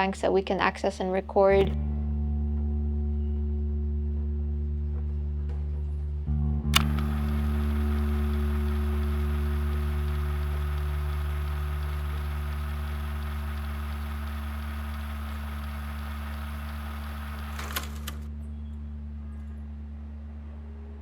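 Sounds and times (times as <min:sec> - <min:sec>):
short crackle: 0:06.8 - 0:18.3.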